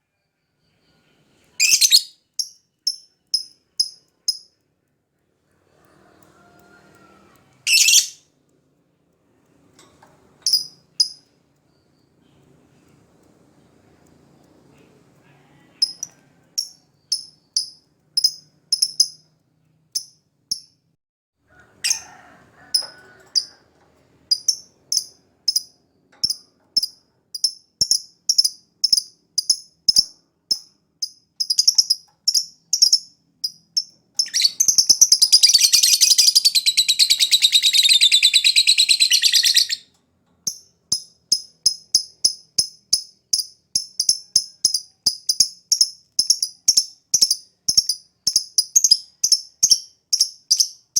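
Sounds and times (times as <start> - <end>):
lovebird chirping: 0.4 - 4.6, 7.6 - 8.2, 15.8 - 19.3, 24.3 - 39.8, 40.5 - 50.9
lovebird rattling trill: 1.6 - 4.5, 7.7 - 8.2, 10.4 - 11.2, 24.3 - 39.8, 40.5 - 50.9.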